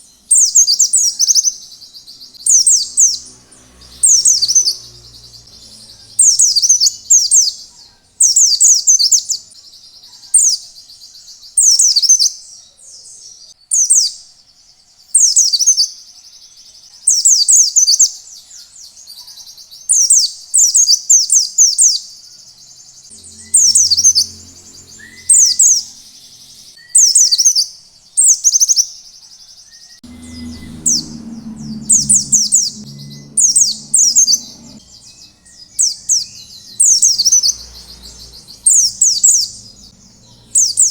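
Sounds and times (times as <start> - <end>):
bird twittering: 0.0 - 3.3, 3.9 - 10.6, 19.9 - 28.9, 29.8 - 40.9
low rumble: 23.1 - 26.6, 30.0 - 40.9.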